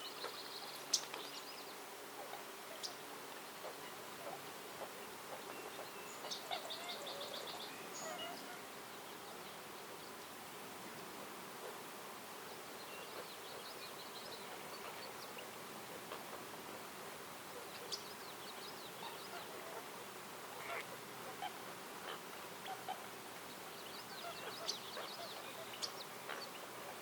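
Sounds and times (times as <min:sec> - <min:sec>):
songbird trills: 0:00.0 - 0:10.2, 0:17.5 - 0:19.9, 0:20.6 - 0:27.0
steady background hiss: 0:00.0 - 0:27.0.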